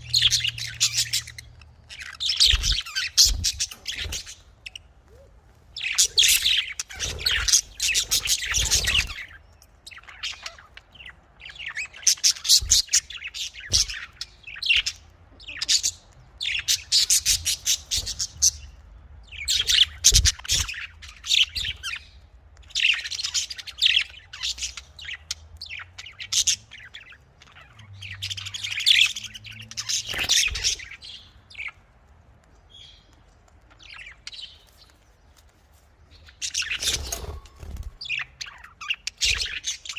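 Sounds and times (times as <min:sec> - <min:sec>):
budgerigar chatter: 0:00.0 - 0:10.8, 0:22.8 - 0:31.8, 0:36.3 - 0:39.9.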